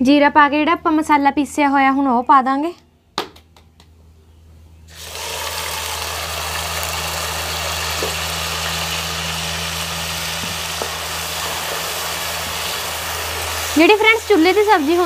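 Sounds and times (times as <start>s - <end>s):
low hum: 4.0s - 15.0s
paste sizzling in hot oil: 4.9s - 15.0s.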